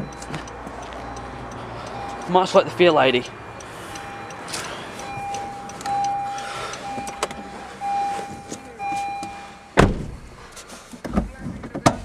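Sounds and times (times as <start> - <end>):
car warning chime: 0.0 - 12.0
sharp thump: 9.8 - 10.4.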